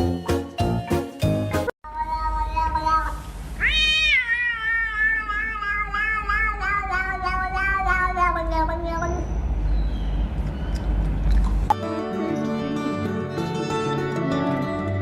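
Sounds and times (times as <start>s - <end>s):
cat meowing: 1.9s - 9.2s.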